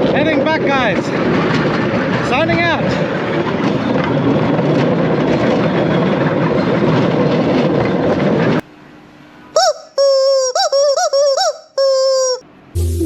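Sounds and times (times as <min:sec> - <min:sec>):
rushing wind: 0:00.0 - 0:08.6.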